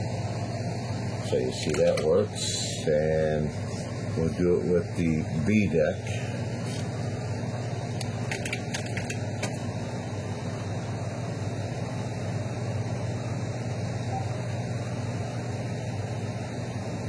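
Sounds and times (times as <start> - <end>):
cassette tape fast-winding whir: 0.0 - 17.0.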